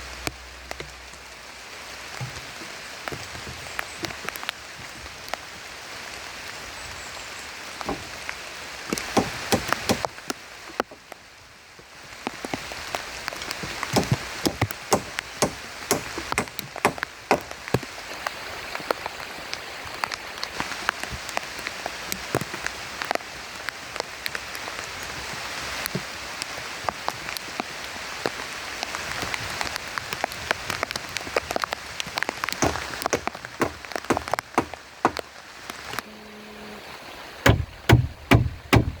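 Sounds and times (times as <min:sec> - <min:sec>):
raindrops ticking: 0:00.0 - 0:05.6, 0:12.2 - 0:26.0, 0:26.8 - 0:36.0, 0:37.4 - 0:39.0
heavy rain on a shelter: 0:00.0 - 0:39.0.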